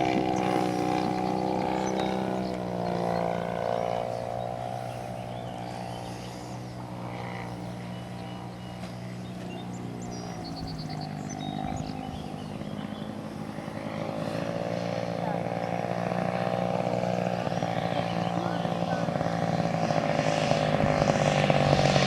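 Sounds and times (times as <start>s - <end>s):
model airplane engine droning: 0.0s - 22.0s.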